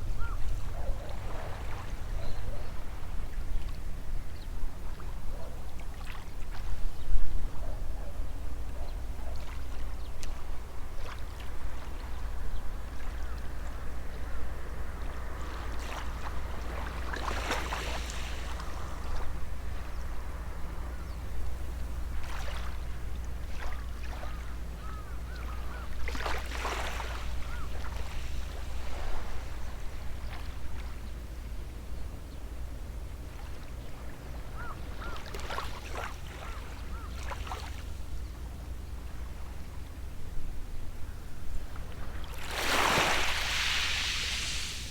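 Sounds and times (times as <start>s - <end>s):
waves washing on shore: 42.3s - 44.9s.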